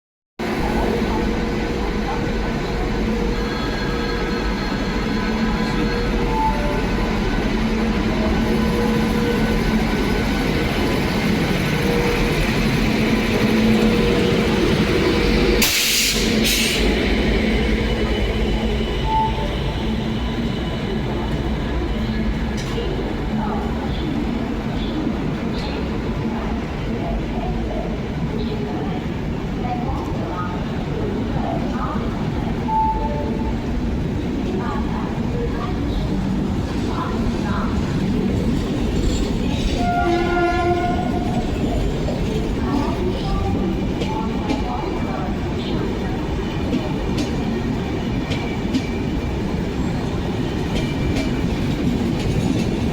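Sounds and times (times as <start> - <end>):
train rumbling on rails: 0.4 - 52.9
train horn blast: 39.8 - 41.6.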